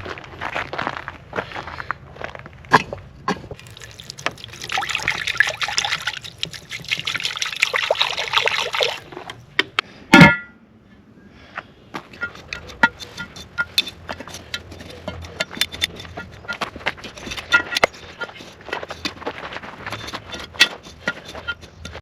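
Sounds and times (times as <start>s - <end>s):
liquid pouring into metal pot: 3.6s - 9.4s
metallic clang: 10.1s - 10.6s, 12.1s - 16.6s, 17.2s - 18.0s.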